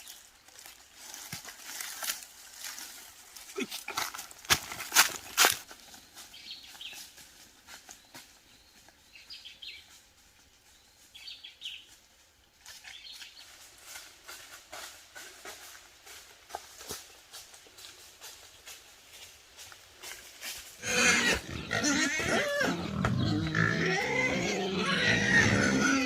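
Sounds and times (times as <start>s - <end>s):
light ticks and rustles: 0.0s - 20.8s.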